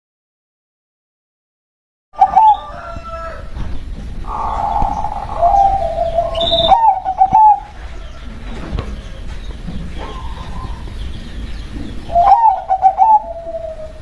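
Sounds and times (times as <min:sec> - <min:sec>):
dove cooing: 0:02.2 - 0:03.4, 0:04.3 - 0:11.0, 0:11.8 - 0:14.0
small bird chirp: 0:03.7 - 0:14.0.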